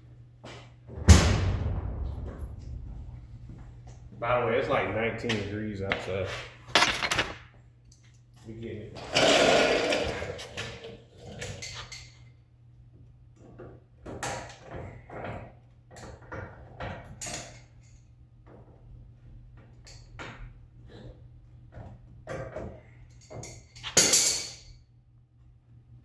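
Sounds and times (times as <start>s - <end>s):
low steady hum: 0.8s - 6.1s.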